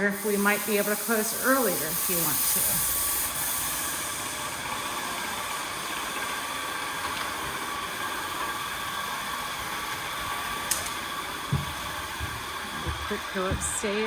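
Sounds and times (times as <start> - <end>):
paint sprayer hissing: 0.0 - 6.5, 9.5 - 14.0
faint motor hum: 4.2 - 14.0.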